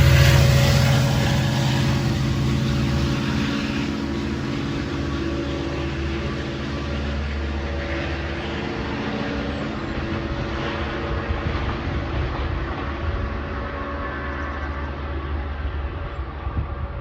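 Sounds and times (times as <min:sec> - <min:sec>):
steady hum: 0:00.0 - 0:07.5
diesel train engine drone: 0:00.0 - 0:17.0.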